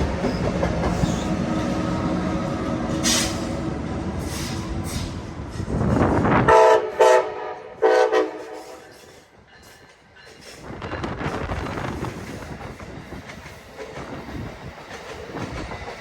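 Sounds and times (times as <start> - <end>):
train rumbling past: 0.0 - 16.0
locomotive horn blasts: 6.5 - 8.9.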